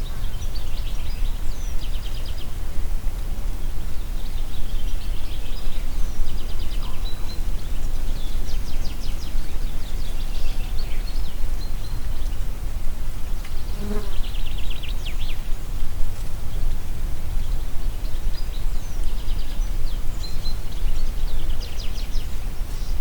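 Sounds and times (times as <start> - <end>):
steady wind with low rumble: 0.0 - 23.0.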